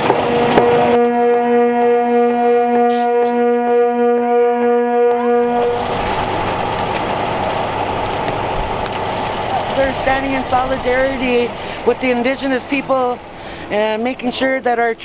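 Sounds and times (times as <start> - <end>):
long steady horn note: 0.0 - 14.4
steady rushing noise: 5.4 - 15.0.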